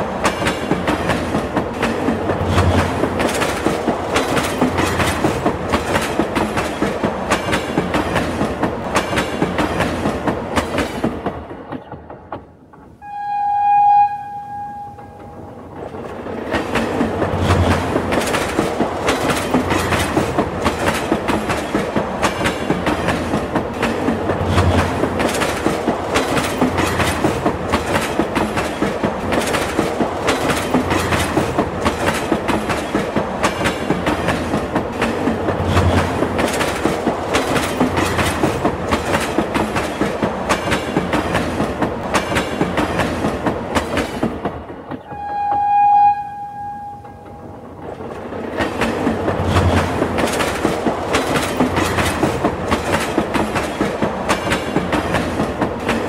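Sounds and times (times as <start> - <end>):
train wheels clattering over rail joints: 0.0 - 13.0, 15.7 - 45.1, 47.1 - 56.0
train horn: 13.0 - 15.6, 45.0 - 47.6.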